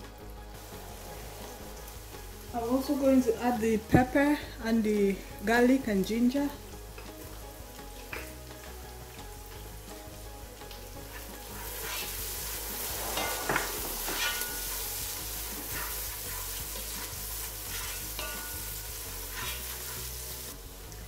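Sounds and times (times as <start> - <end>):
onions sizzling in butter: 0.0 - 21.0
spoon scraping a pot: 12.8 - 14.8, 17.7 - 18.7, 19.3 - 20.1.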